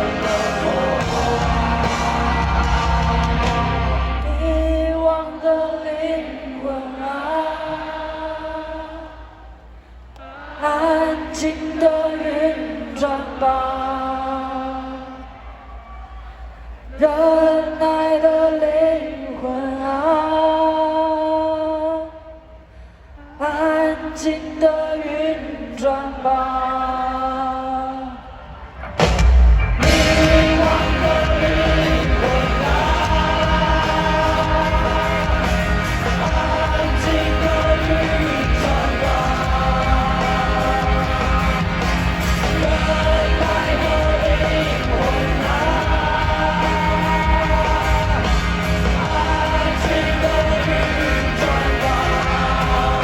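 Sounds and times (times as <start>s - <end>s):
live rock band playing: 0.0s - 4.4s, 28.9s - 53.0s
drums and bass: 0.0s - 5.0s, 28.8s - 53.0s.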